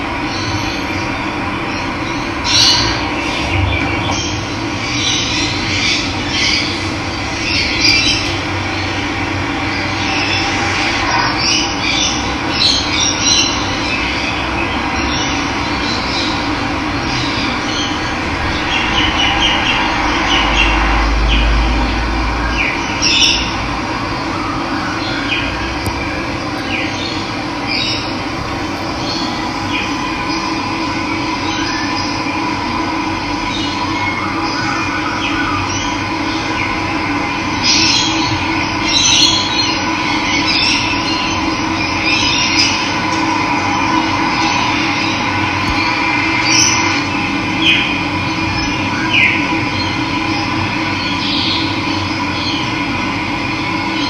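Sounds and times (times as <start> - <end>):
low rumble: 2.3 - 11.8, 14.3 - 33.8
birds chirping: 25.0 - 32.3.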